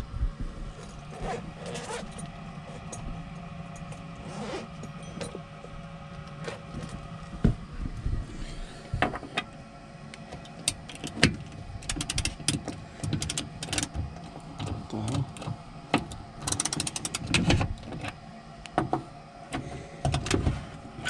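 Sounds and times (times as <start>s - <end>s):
furnace motor humming: 0.0s - 21.0s
metal clicks and knocks: 10.4s - 18.1s.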